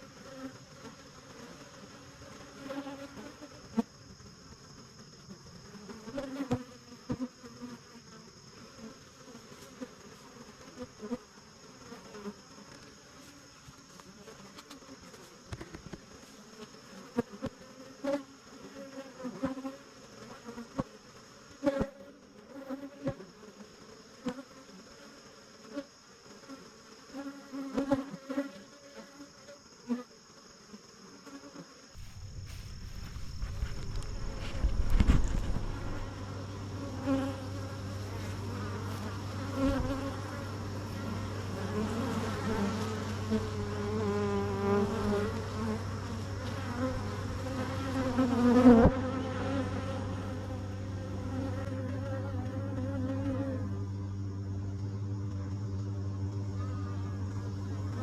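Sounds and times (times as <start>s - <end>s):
bees buzzing: 0.0s - 58.0s
steady high whine: 32.0s - 48.3s.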